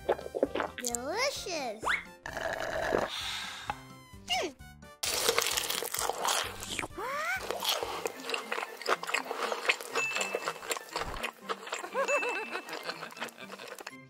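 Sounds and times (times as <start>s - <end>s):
light background music: 0.0s - 14.0s
crunchy chewing of pizza: 5.0s - 14.0s.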